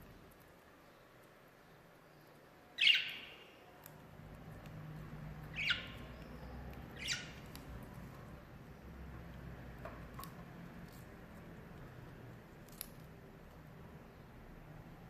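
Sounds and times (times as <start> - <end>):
bird harsh calls: 5.5 - 7.4.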